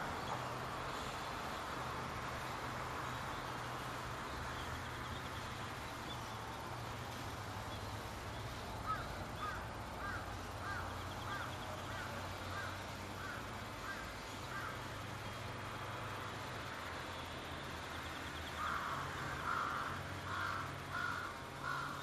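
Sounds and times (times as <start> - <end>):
steady low hum: 0.0 - 22.0
bird calling: 8.4 - 14.8.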